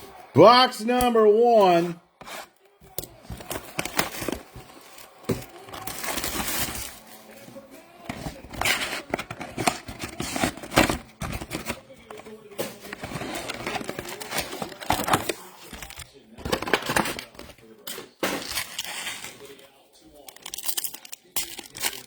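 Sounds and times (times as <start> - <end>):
faint broadcast voices: 0.0 - 22.0
plastic wrap tearing and crinkling: 3.6 - 7.3, 20.2 - 22.0.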